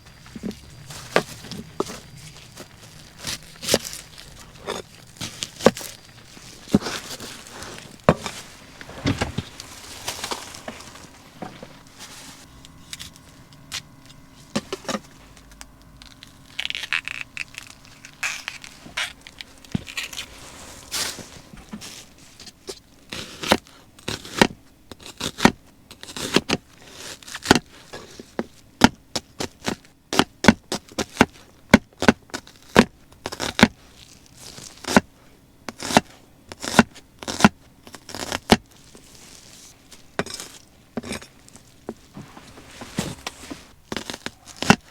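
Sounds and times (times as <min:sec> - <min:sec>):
utensils clicking and scraping: 0:00.0 - 0:23.3
faint steady hum: 0:00.0 - 0:44.9.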